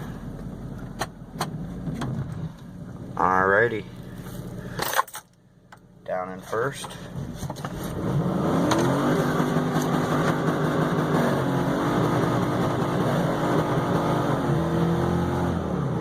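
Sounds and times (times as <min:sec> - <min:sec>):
engine revving hard: 0:07.9 - 0:16.0.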